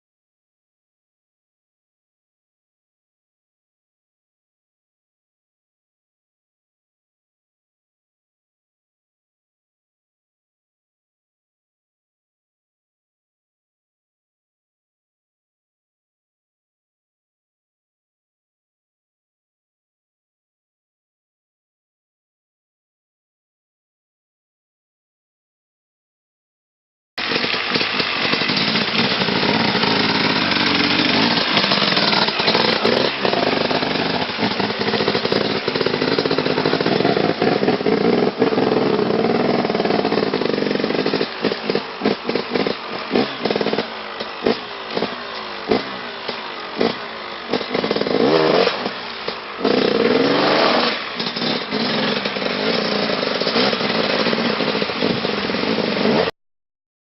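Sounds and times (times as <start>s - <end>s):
off-road vehicle engine revving: 27.2s - 56.3s.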